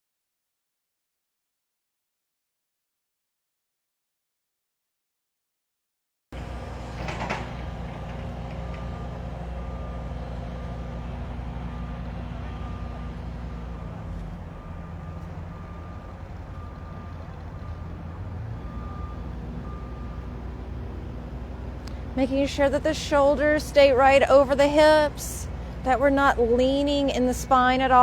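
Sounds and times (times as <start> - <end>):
low engine rumble: 6.4 - 28.0
reversing alarm beeping: 6.4 - 28.0.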